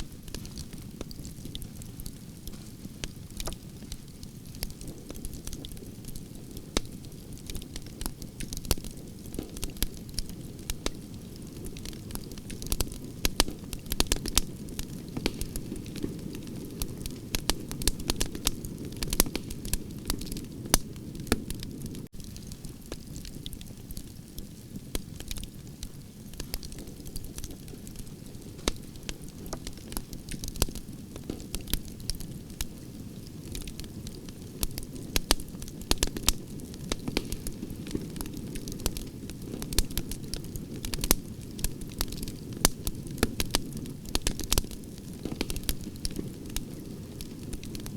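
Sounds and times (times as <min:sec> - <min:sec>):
campfire crackling: 0:00.0 - 0:47.9
sharp pops and snaps: 0:11.7 - 0:16.2, 0:28.6 - 0:32.7.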